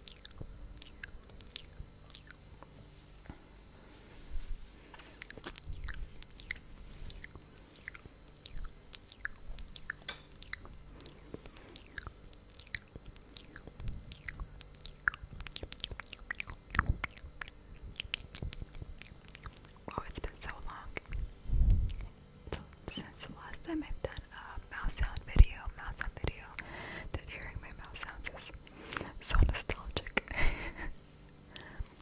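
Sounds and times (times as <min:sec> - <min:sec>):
sticky lip smacking: 0:00.0 - 0:02.4, 0:05.2 - 0:23.1.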